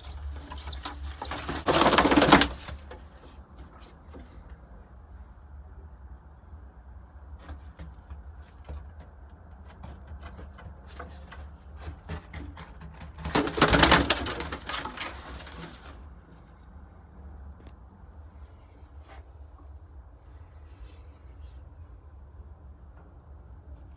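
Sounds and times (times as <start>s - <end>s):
pigeons cooing: 0.0s - 2.7s
loud rustling: 0.0s - 2.8s.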